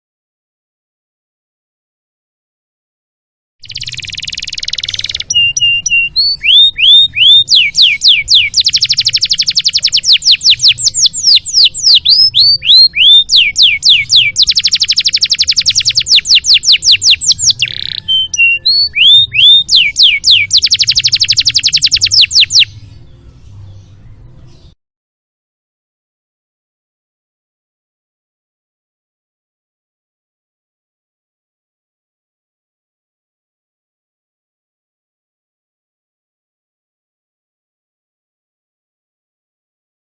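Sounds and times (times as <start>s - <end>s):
canary singing: 3.6s - 24.8s.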